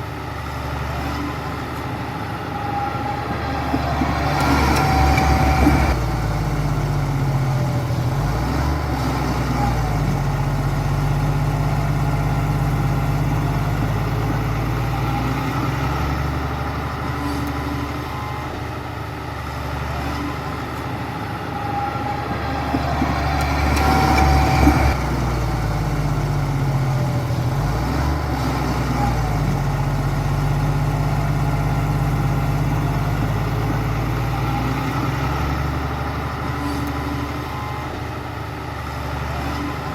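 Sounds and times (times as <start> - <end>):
heavy diesel machinery engine: 0.0 - 39.9.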